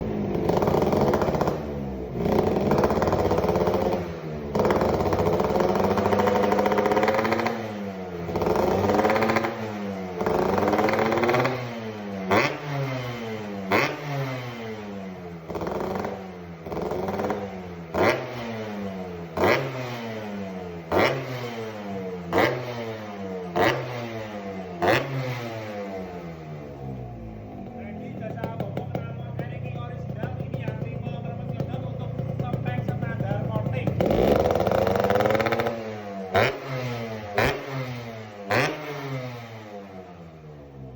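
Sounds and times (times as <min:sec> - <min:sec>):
exhaust crack: 0:00.0 - 0:07.6, 0:26.9 - 0:37.7
motorcycle engine revving: 0:00.0 - 0:40.9.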